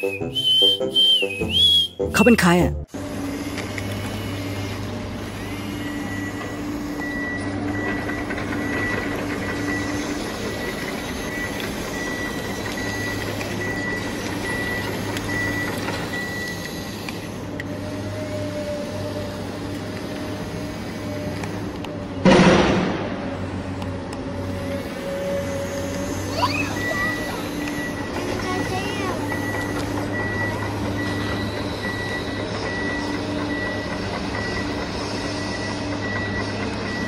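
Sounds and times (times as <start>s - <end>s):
toy excavator mechanical hum: 2.9s - 22.2s, 23.7s - 37.0s
high beeping: 26.3s - 33.8s.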